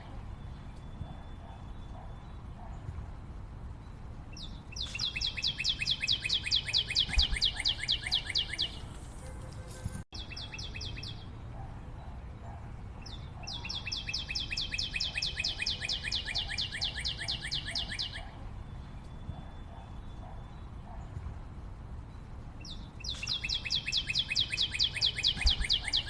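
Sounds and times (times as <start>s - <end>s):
forest bird calling: 4.4s - 9.0s, 12.4s - 18.4s, 22.6s - 26.0s.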